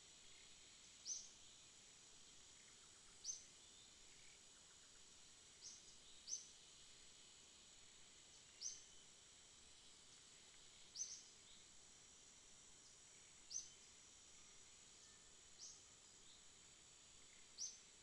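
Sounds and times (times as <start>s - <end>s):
night insects droning: 0.0s - 18.0s.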